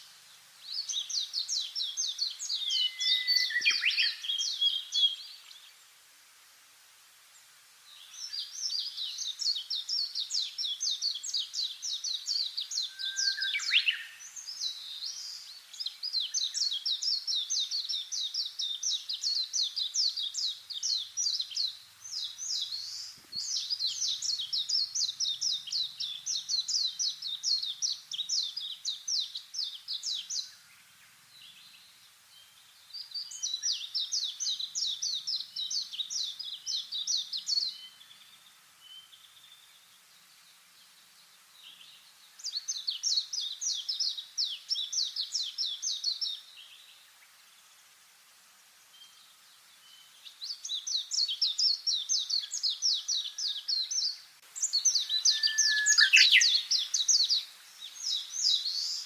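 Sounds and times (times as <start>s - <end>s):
songbird chirping rapidly: 0.7s - 5.4s, 8.4s - 30.7s, 49.8s - 59.0s.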